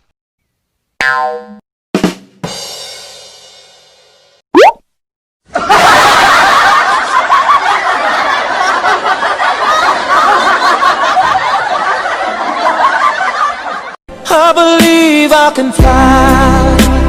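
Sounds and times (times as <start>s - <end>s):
crowd laughing: 5.5s - 14.0s.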